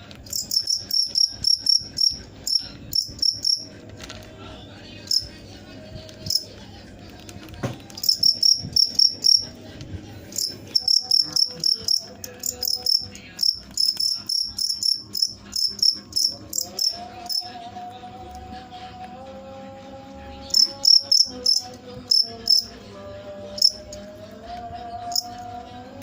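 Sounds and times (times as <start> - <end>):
cricket chirping: 0.2 - 3.7, 8.0 - 9.5, 10.3 - 17.6, 20.5 - 22.7, 23.5 - 24.0, 25.0 - 25.5.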